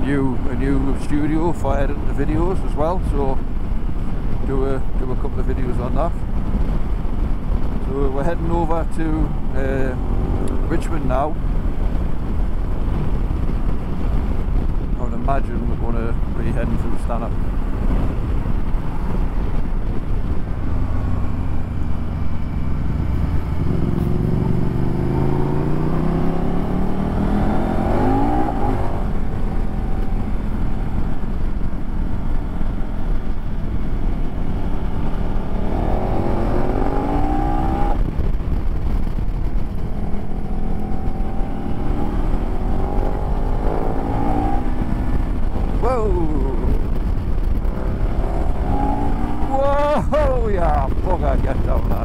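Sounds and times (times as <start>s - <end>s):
heavy wind rush: 0.0s - 52.0s
motorcycle engine accelerating: 17.5s - 52.0s.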